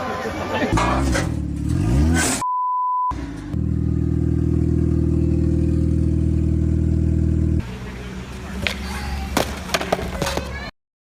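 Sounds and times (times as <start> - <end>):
censor bleep tone: 2.4 - 3.2
engine running steadily: 3.2 - 9.2.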